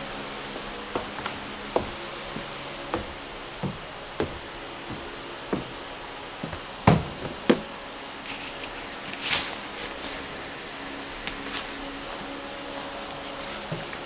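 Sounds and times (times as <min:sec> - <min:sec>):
rustling: 0:00.1 - 0:14.0
equipment knocks and thumps: 0:00.9 - 0:09.0.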